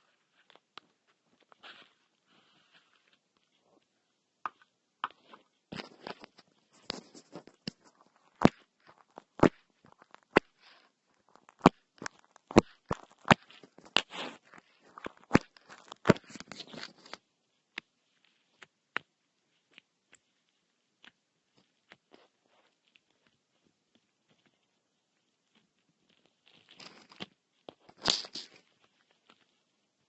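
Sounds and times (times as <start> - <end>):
slime clicking and squishing: 7.6 - 24.4.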